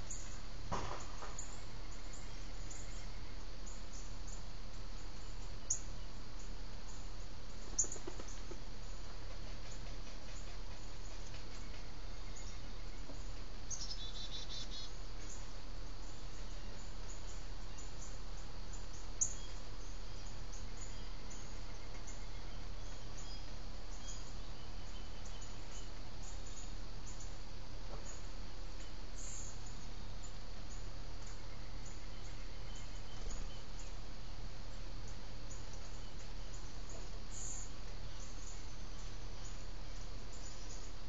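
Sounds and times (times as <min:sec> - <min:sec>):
insect chirping: 0:00.0 - 0:41.0
low electrical hum: 0:00.0 - 0:41.0.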